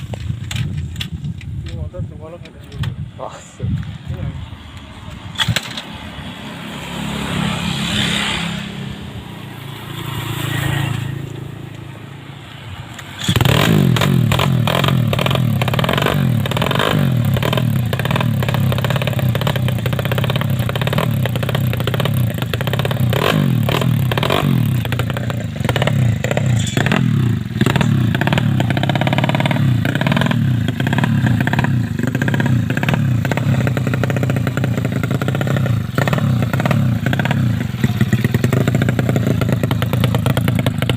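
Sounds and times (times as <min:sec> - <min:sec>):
motorcycle engine revving: 0:12.9 - 0:40.9.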